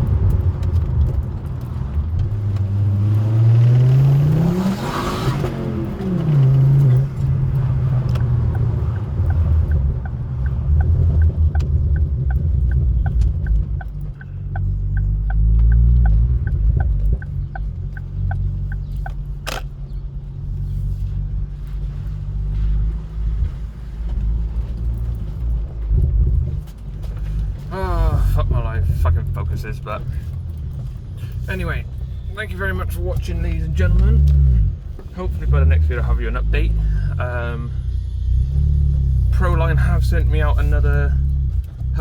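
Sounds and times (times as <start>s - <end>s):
car engine rumbling: 0.0s - 42.0s
light ticking: 5.8s - 20.1s.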